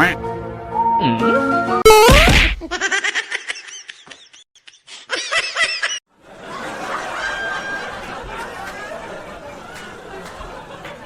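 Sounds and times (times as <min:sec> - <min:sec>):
snickering laughter: 0:02.6 - 0:06.0.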